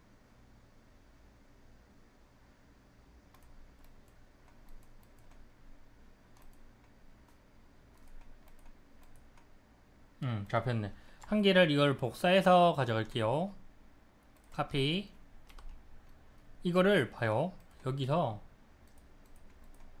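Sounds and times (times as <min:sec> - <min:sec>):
low room hum: 0:00.0 - 0:20.0
mouse and keyboard clicking: 0:03.3 - 0:05.5, 0:06.3 - 0:09.5, 0:15.4 - 0:16.2, 0:18.8 - 0:20.0.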